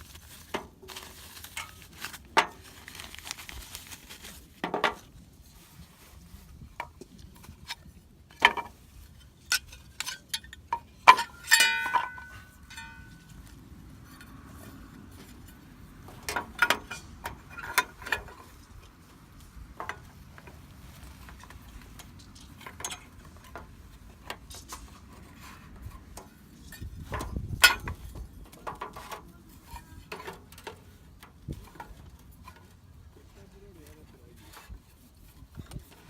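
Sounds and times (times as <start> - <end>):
tableware clinking and knocking: 11.1 - 13.2.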